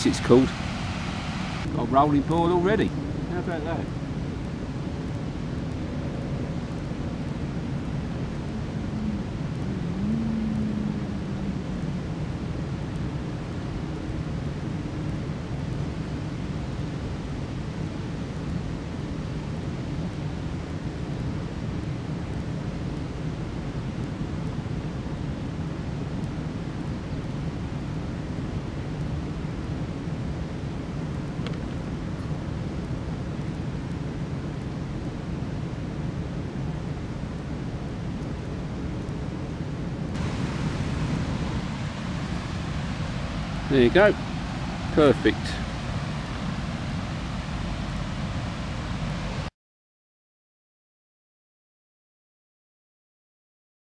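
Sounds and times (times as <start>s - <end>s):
water boiling: 0.0s - 17.3s, 36.3s - 49.5s.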